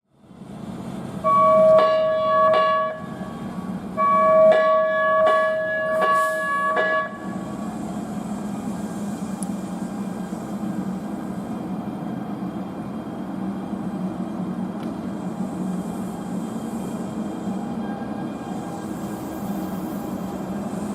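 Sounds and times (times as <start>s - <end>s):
train running with low hum: 0.0s - 20.9s
train warning tones: 1.1s - 10.8s, 15.3s - 20.9s.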